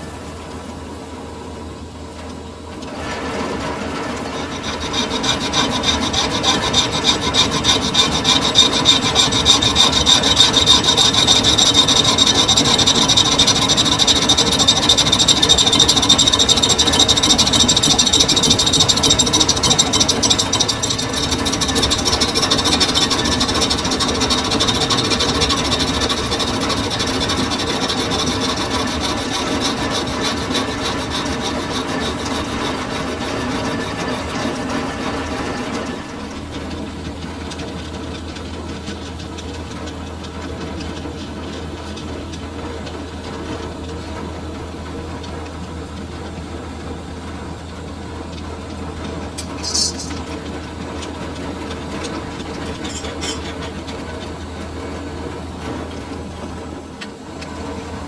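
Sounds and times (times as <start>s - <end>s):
metal lathe rasping scrape: 2.9s - 37.6s, 49.4s - 50.4s, 51.0s - 53.8s.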